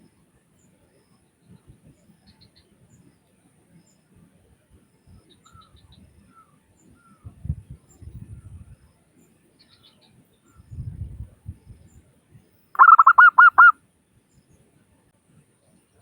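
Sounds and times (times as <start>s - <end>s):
small birds chirping: 12.8s - 13.7s
dove calling softly: 12.8s - 13.8s.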